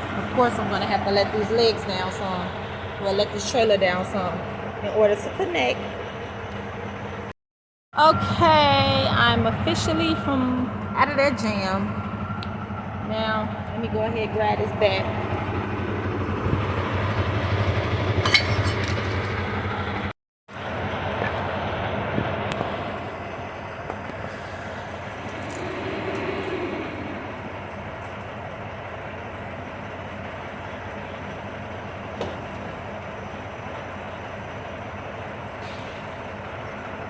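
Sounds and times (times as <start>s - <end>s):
diesel truck engine idling: 0.0s - 7.3s, 8.0s - 37.0s
metallic clinks: 25.2s - 26.6s.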